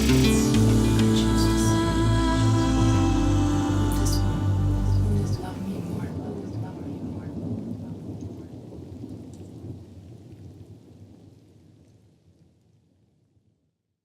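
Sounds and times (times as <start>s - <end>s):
low rumbling noise: 0.0s - 9.2s.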